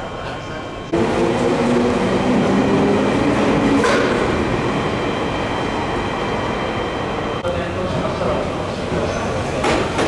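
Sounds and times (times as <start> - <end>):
electric train running noise: 0.8 - 7.4.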